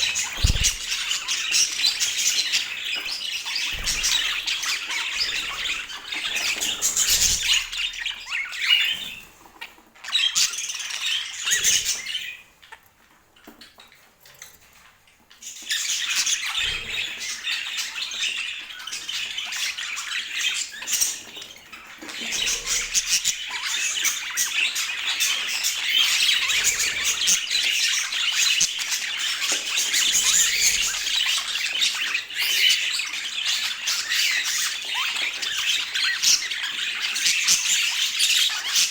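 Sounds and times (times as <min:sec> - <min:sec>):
budgerigars chattering: 0:00.0 - 0:02.8.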